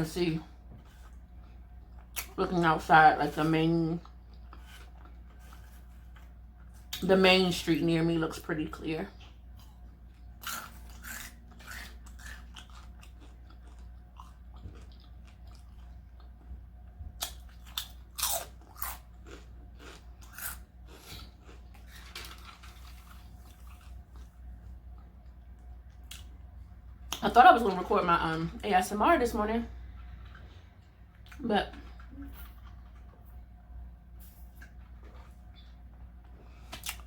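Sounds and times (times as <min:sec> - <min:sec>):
person chewing and crunching: 0:00.8 - 0:02.4, 0:03.9 - 0:07.0, 0:09.1 - 0:26.4, 0:29.8 - 0:33.4, 0:34.6 - 0:37.0.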